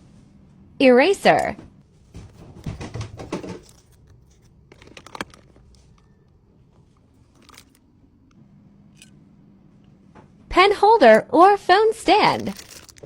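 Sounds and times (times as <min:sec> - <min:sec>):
plastic packaging rustling: 0:02.1 - 0:07.8, 0:12.3 - 0:13.0.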